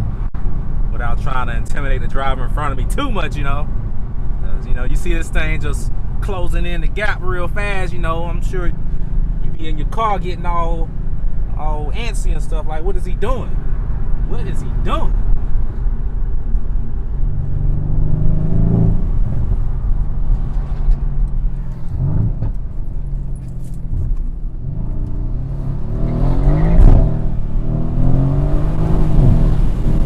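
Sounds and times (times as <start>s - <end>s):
car engine accelerating: 7.0s - 30.0s.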